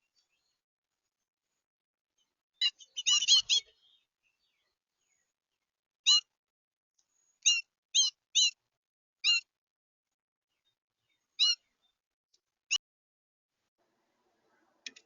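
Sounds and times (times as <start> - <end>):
bird short clipped calls: 2.6 - 3.8, 7.4 - 8.6, 11.4 - 11.6.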